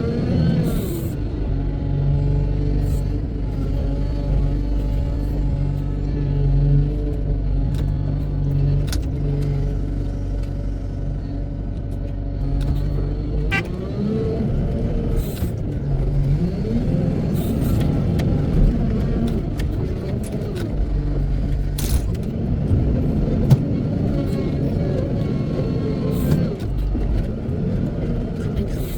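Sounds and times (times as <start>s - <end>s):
wheel loader diesel engine revving: 0.0s - 28.9s
short clunks: 17.4s - 25.0s.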